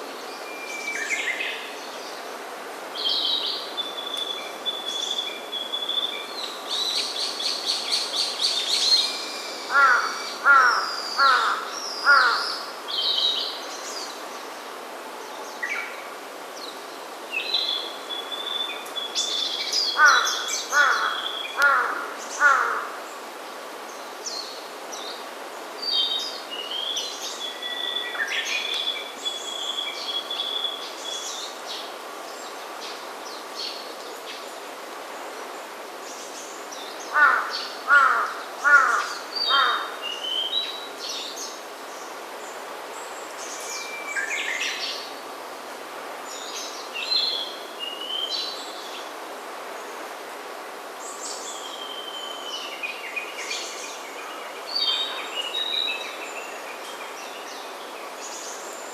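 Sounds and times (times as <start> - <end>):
crow cawing: 9.7 - 12.6, 20.0 - 23.0, 37.1 - 40.0.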